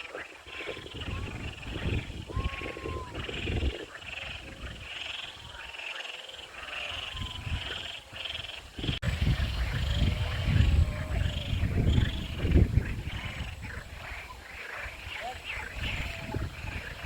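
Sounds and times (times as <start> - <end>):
frogs calling: 0.0 - 17.0
wind rumble on microphone: 0.4 - 5.7, 6.7 - 17.0.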